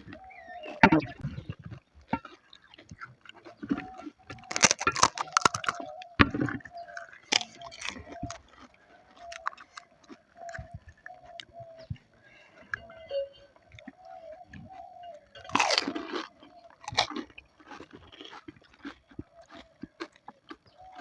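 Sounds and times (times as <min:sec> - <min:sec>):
crisp shells crunching in chewing: 0:00.1 - 0:11.8, 0:13.8 - 0:21.0
faint background tone: 0:12.2 - 0:14.4.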